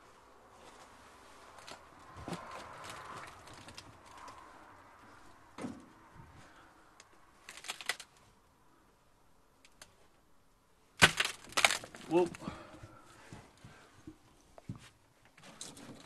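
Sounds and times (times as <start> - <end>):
thump: 5.6 - 5.9.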